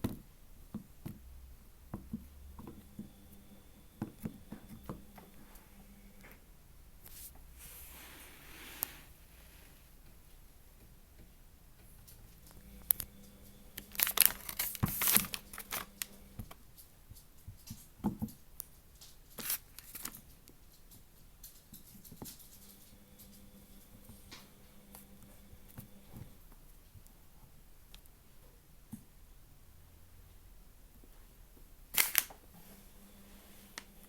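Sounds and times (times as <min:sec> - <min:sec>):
clicks and crinkles: 0:11.2 - 0:25.1, 0:31.9 - 0:32.5
hands crackling and tearing model: 0:13.8 - 0:16.0, 0:19.4 - 0:20.2, 0:32.0 - 0:32.4.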